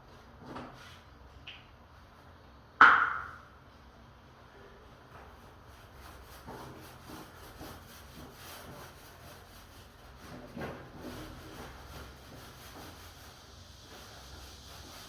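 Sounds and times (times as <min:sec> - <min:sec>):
rubbing on wooden door: 0:05.3 - 0:15.0.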